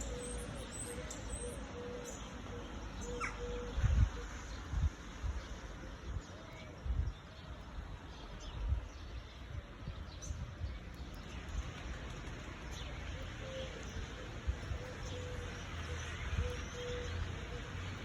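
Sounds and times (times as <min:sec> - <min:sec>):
bird cooing: 0:00.0 - 0:03.7, 0:13.4 - 0:15.5.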